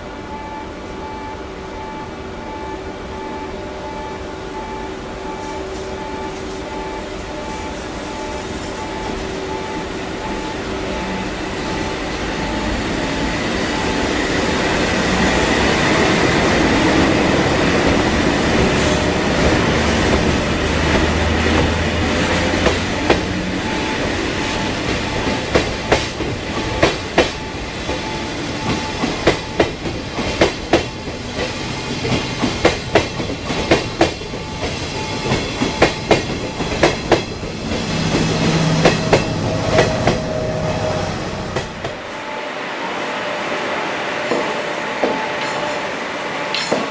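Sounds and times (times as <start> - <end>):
electric locomotive humming: 0.0 - 46.9
train wheels clicking over rail joints: 17.8 - 40.3.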